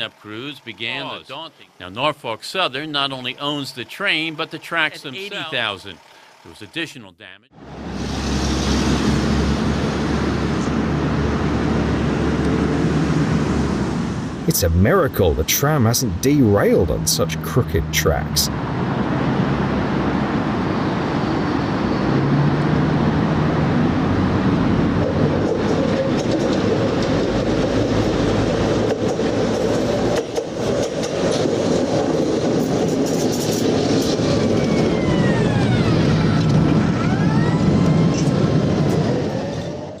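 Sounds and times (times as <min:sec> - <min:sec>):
rail wheels rumbling: 0:18.8 - 0:40.0.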